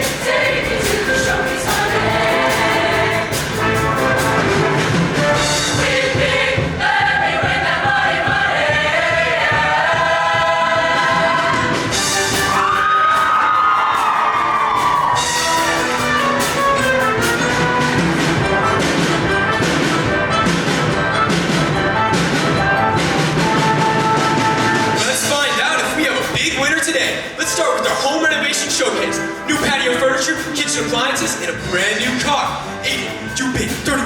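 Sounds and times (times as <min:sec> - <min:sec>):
live band playing: 0:00.0 - 0:07.8, 0:11.1 - 0:34.0
choir singing: 0:00.0 - 0:13.0
drum hits: 0:00.0 - 0:27.2.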